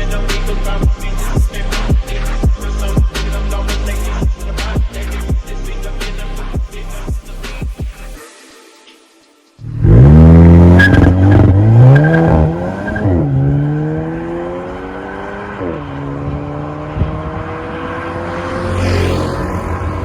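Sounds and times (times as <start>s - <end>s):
car engine revving and accelerating: 9.6s - 20.0s.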